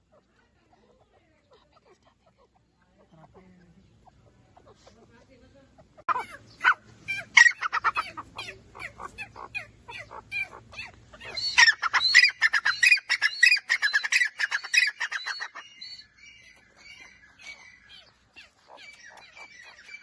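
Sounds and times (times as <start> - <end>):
francolin calling harshly: 5.8 - 20.0.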